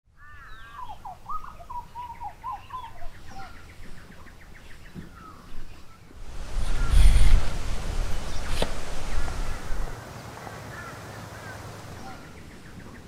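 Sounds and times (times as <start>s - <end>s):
birds warbling and calling: 0.2s - 13.0s
hiss: 6.2s - 12.2s.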